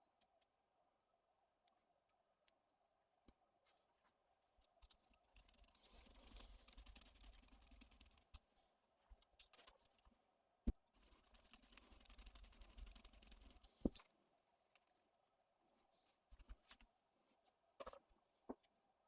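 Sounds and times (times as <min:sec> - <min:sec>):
small parts clicking and rustling: 0:03.2 - 0:10.2.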